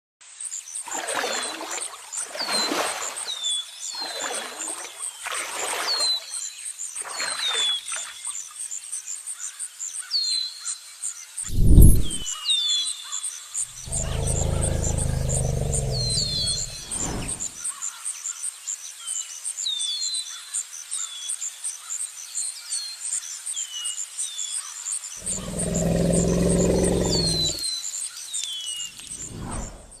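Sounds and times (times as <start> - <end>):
tiger growling: 11.5 - 12.3, 13.8 - 17.5, 25.2 - 27.6
insects chirping: 13.5 - 18.0, 24.8 - 30.0.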